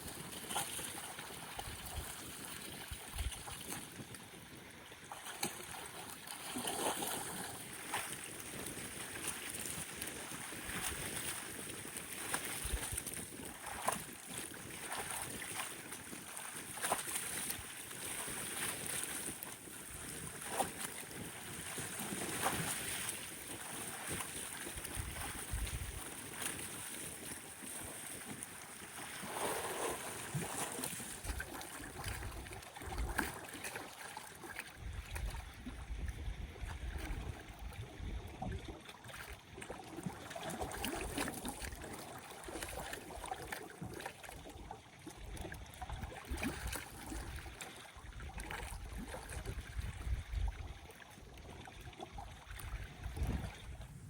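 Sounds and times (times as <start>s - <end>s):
lake water lapping on shore: 0.0s - 54.0s
wind buffeting microphone: 24.9s - 26.1s, 52.8s - 54.0s.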